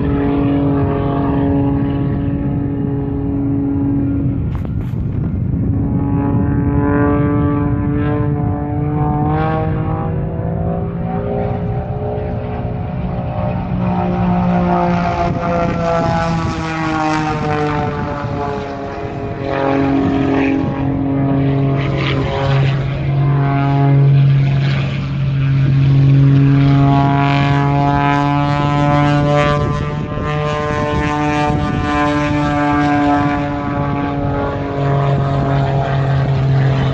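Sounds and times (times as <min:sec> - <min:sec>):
propeller aircraft engines droning: 0:00.0 - 0:36.9.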